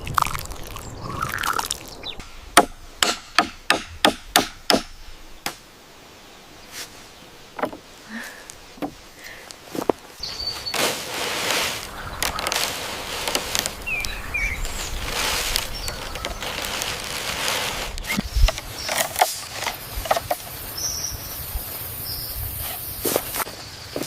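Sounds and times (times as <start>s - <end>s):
bird chirps: 0.5s - 2.4s, 10.2s - 10.8s, 13.8s - 15.1s
rustling handling noise: 6.7s - 20.5s.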